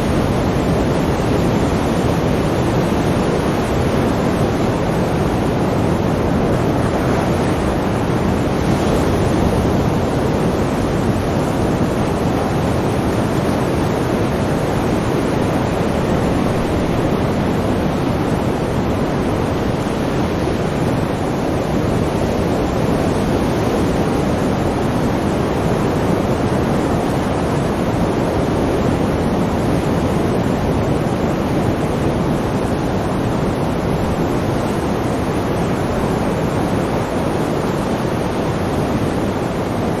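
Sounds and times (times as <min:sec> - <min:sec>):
sea waves rushing: 0:00.0 - 0:40.0.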